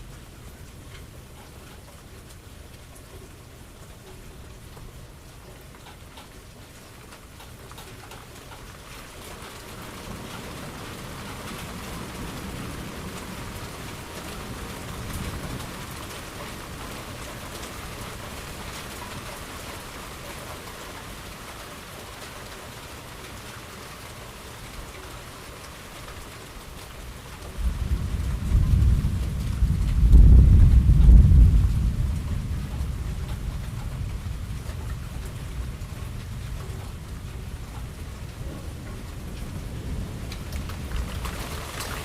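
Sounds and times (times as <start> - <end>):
steady rain falling: 0.0 - 42.0
low thunder rumbling: 27.4 - 42.0.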